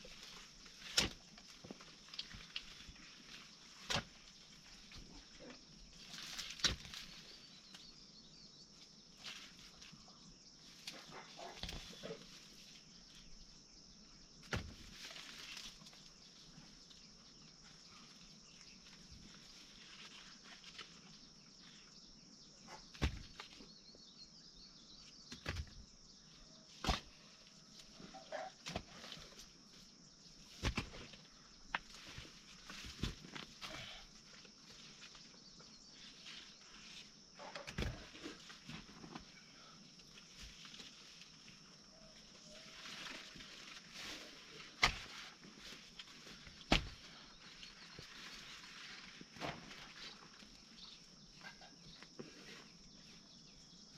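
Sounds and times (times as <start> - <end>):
steady high-pitched hiss: 0.0 - 22.6, 23.3 - 53.9
knocks and thuds of hand work: 14.4 - 14.9, 22.9 - 23.5, 25.3 - 25.8, 26.8 - 27.1, 30.6 - 31.8, 46.6 - 47.1.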